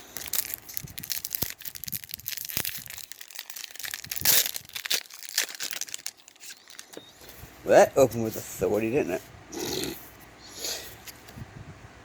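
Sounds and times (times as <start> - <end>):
foil wrapper crinkling: 0.0 - 7.0
foil wrapper tearing: 0.0 - 7.0.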